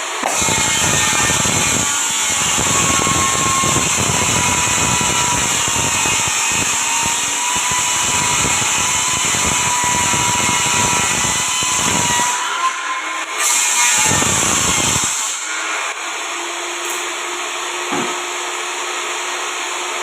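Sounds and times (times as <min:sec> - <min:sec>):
electric power tool whirring: 0:00.0 - 0:19.9.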